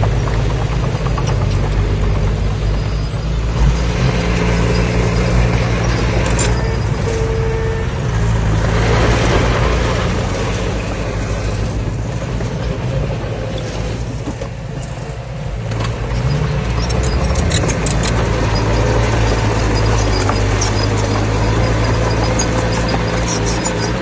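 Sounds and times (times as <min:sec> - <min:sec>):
heavy diesel engine running: 0:00.0 - 0:24.0
sharp high clicks: 0:16.7 - 0:24.0.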